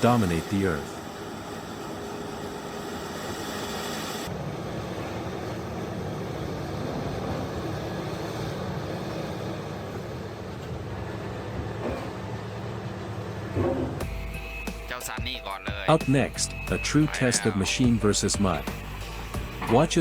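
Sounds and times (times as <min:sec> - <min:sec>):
excavator engine running under load: 0:00.0 - 0:20.0.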